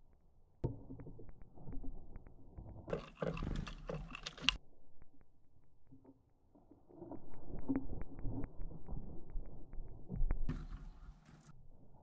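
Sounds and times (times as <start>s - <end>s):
birds clattering on feeder: 2.9s - 4.6s
slowed low rumble: 6.6s - 10.5s.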